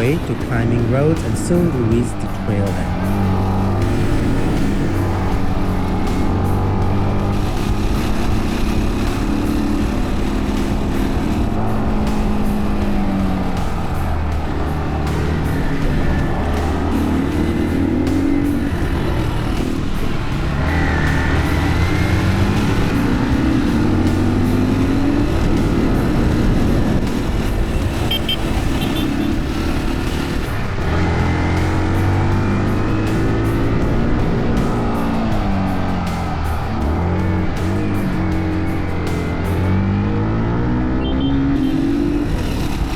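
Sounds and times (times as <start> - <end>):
background music: 0.0 - 42.9
dirt bike engine running: 0.0 - 42.9
road and wind noise: 0.0 - 42.9.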